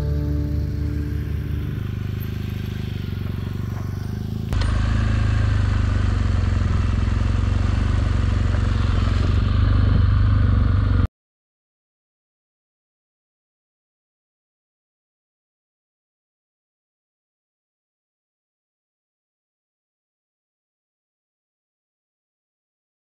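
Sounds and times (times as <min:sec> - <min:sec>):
motorcycle engine running: 0:00.0 - 0:11.1
road noise: 0:00.0 - 0:11.1.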